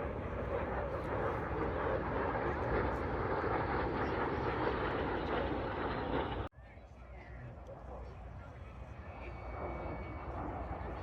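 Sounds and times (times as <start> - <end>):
aircraft engine droning: 0.0 - 11.0.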